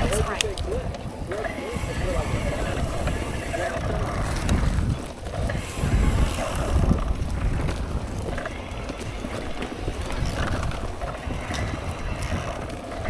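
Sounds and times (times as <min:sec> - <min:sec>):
bike knocking and rattling: 0:00.0 - 0:13.0
bike tyres on trail: 0:00.0 - 0:13.0
wind rumble on microphone: 0:00.0 - 0:13.0.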